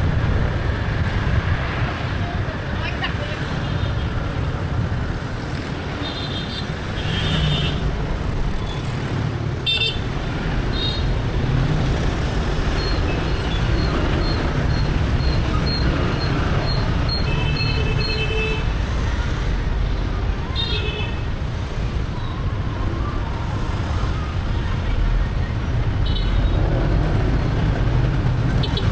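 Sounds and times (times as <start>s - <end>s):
traffic rumble: 0.0s - 28.9s.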